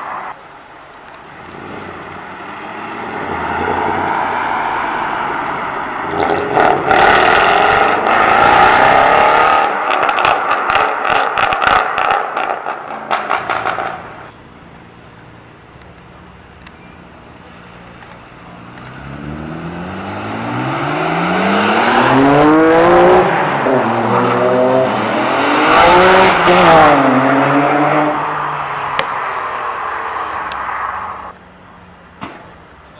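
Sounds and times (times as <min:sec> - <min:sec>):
car engine revving: 0:01.3 - 0:14.3, 0:18.6 - 0:31.3
exhaust crackles and pops: 0:09.7 - 0:14.2
car accelerating through gears: 0:18.9 - 0:28.5.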